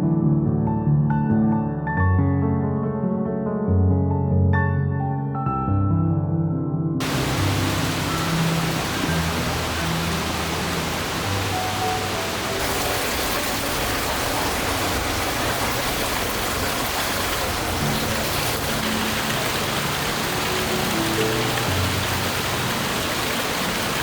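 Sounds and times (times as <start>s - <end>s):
soft ambient music: 7.0s - 14.3s, 16.8s - 24.0s
flowing water: 7.0s - 24.0s.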